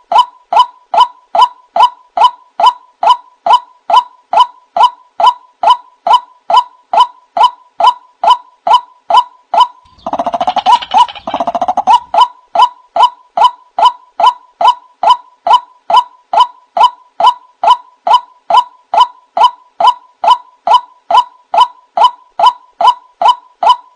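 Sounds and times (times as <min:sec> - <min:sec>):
rapid bird chattering: 0:09.8 - 0:12.3.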